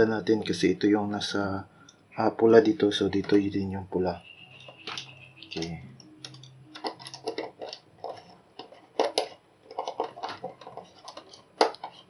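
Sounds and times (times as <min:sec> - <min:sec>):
hands handling wires and tools: 0:02.6 - 0:03.7, 0:04.4 - 0:12.0.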